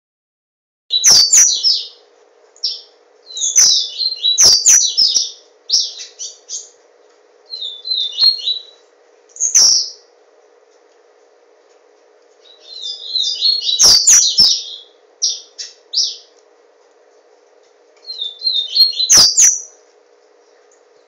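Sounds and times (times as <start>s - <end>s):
bird singing high chirps: 0.9s - 2.0s, 2.6s - 6.8s, 7.5s - 8.8s, 9.4s - 10.1s, 12.4s - 16.3s, 18.0s - 19.8s
faint steady hum: 0.9s - 21.0s.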